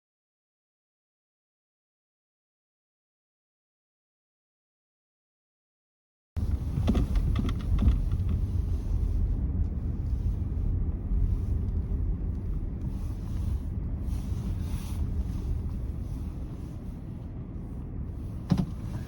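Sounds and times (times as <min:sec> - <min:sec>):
engine and road rumble: 0:06.4 - 0:19.0.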